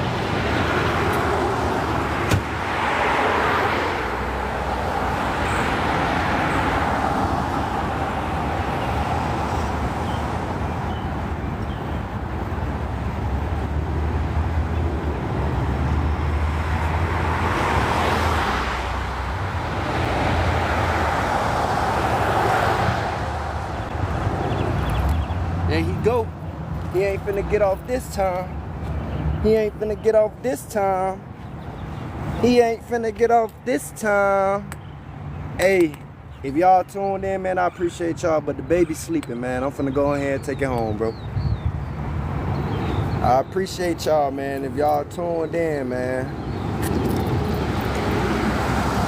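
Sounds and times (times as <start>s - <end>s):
cars passing by: 0.0s - 49.0s
low traffic hum: 0.0s - 49.0s.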